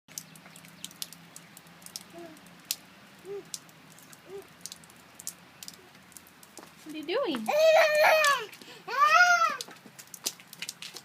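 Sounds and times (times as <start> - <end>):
water drops pattering: 0.1 - 11.0
small child cooing: 2.1 - 2.5, 3.2 - 3.6, 4.2 - 4.6, 7.5 - 9.7.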